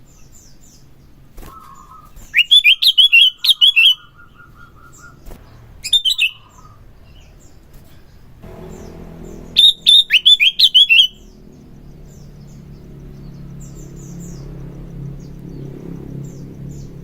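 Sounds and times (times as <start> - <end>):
faint bird chirps: 0.0 - 17.0
steady low hum: 4.0 - 17.0
bulbul singing sliding notes: 8.4 - 13.6.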